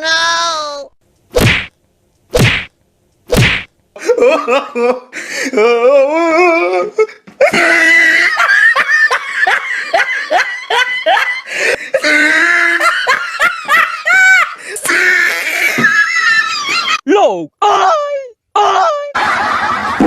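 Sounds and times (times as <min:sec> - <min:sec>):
people laughing hard: 0:04.0 - 0:05.1, 0:07.4 - 0:17.0, 0:19.1 - 0:20.0.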